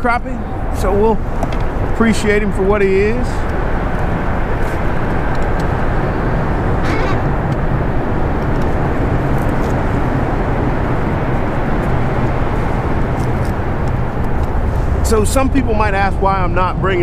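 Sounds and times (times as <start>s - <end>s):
loud rumbling noise: 3.6s - 17.0s.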